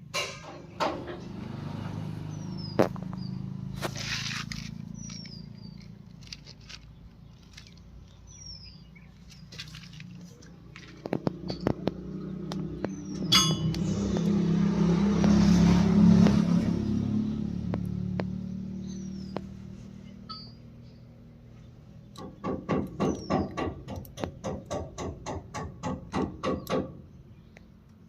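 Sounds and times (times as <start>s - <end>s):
tractor diesel engine running: 0.0s - 26.0s
metallic clinks: 13.2s - 13.9s.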